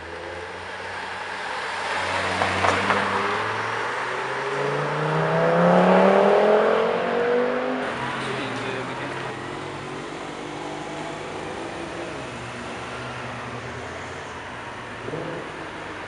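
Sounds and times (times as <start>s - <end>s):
car accelerating past: 1.7s - 8.6s.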